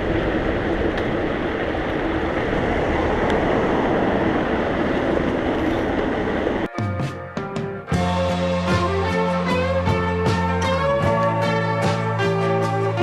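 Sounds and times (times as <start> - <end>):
wind rush on microphone: 0.0 - 6.7
tyre and road noise: 0.0 - 13.0.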